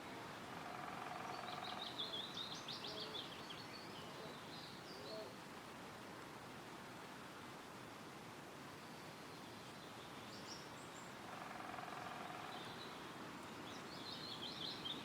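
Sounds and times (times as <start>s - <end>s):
songbird singing: 0.0s - 5.4s, 8.7s - 15.0s
wind rustling through trees: 0.0s - 15.0s.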